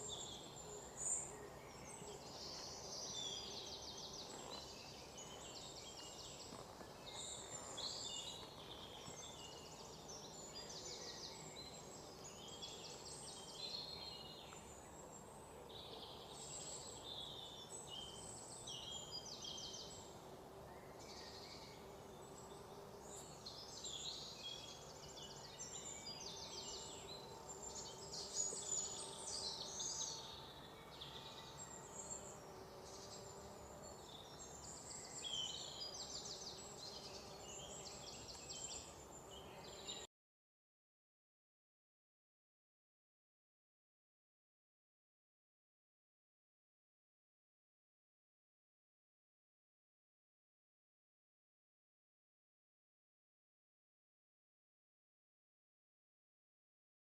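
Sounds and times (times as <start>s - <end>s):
low outdoor background noise: 0.0s - 40.1s.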